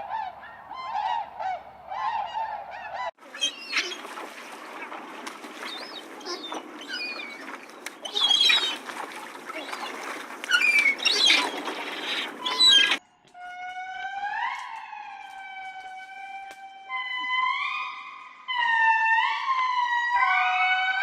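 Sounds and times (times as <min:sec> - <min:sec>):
outdoor background noise: 0:00.0 - 0:21.0
chirping bird-like calls: 0:00.1 - 0:13.0
high-pitched animal call: 0:10.5 - 0:13.0.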